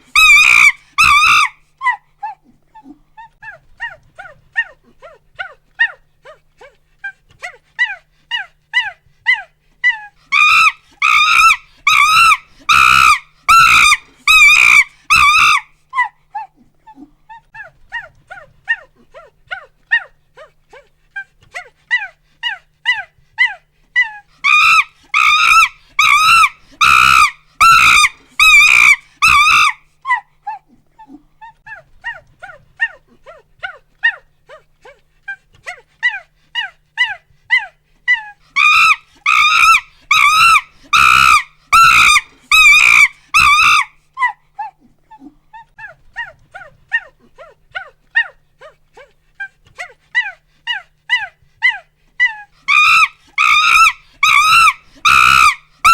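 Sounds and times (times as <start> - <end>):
monkey hooting: 0.0 - 2.4, 7.8 - 16.5, 21.9 - 33.0, 35.7 - 48.4, 49.8 - 55.9
monkey screaming: 0.0 - 2.4, 7.8 - 16.1, 21.9 - 30.6, 36.0 - 44.8, 49.8 - 55.9.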